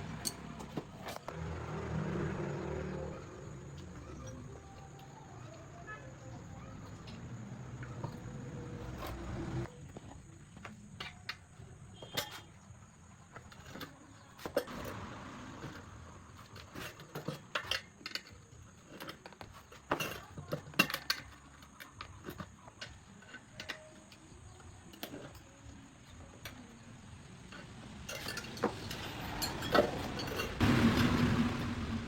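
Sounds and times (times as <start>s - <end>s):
traffic noise: 0.0s - 32.0s
metal hand tools clinking: 28.0s - 30.6s.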